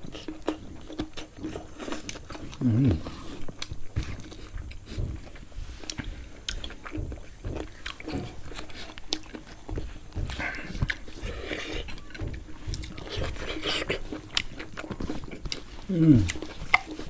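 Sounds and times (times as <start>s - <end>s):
chewing with wet mouth clicks: 0.0s - 17.0s.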